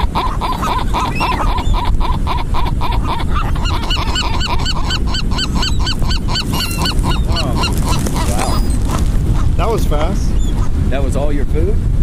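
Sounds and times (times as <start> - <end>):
rapid yelping bird notes: 0.0 - 9.6
gulls calling: 0.0 - 10.8.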